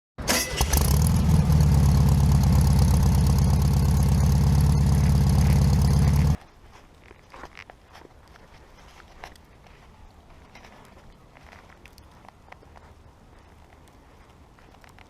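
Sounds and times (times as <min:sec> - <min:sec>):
car engine starting and idling: 0:00.2 - 0:06.4.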